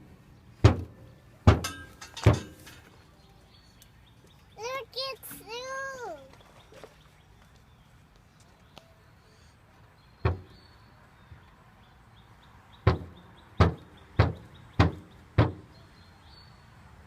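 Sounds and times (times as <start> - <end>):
heavy knocks with ringing tail: 10.3 - 10.6, 12.8 - 15.7.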